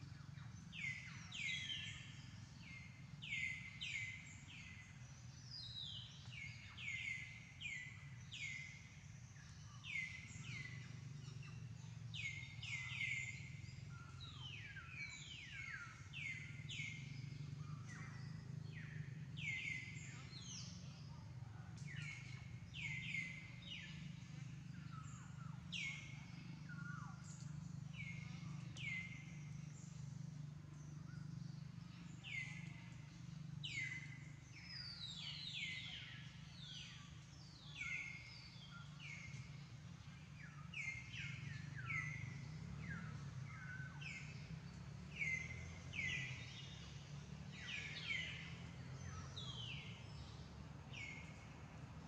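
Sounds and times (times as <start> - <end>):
steady low hum: 0.0 - 52.0
birds chirping: 0.1 - 52.0.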